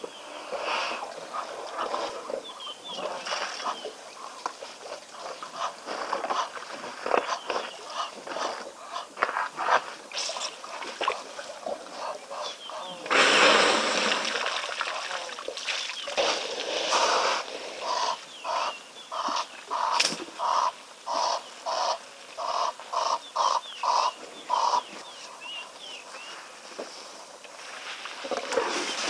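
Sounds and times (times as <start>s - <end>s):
small birds chirping: 0.0s - 9.2s, 11.9s - 13.1s, 17.8s - 26.5s
water splashing: 10.1s - 12.1s, 13.1s - 18.0s
bird honking: 17.8s - 24.9s.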